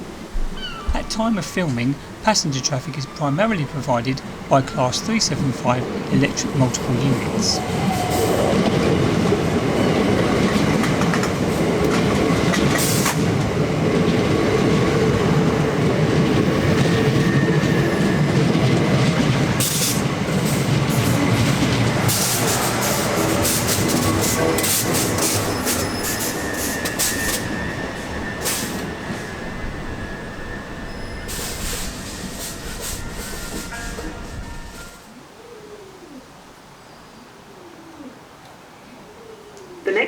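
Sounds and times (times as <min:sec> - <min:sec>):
electric train running in: 0:01.3 - 0:35.1.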